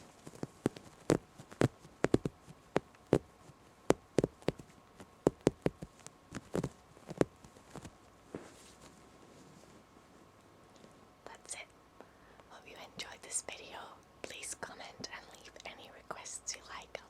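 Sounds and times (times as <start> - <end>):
fingernails tapping on fabric: 0.3 - 3.3, 3.9 - 8.5.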